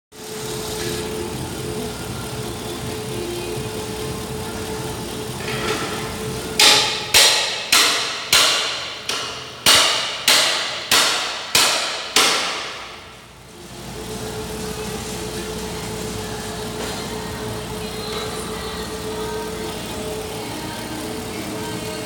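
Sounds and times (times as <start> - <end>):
car engine idling: 0.2 - 22.0
loud sharp knocks: 6.6 - 13.0.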